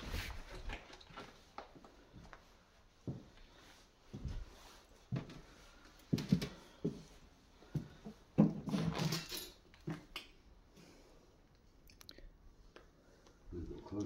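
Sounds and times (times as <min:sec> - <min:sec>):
rustling scrape: 0:00.0 - 0:00.8.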